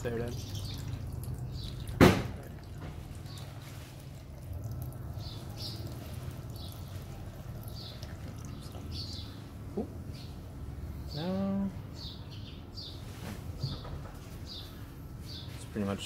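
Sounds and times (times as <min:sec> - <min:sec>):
sharp knock: 0:02.0 - 0:02.4.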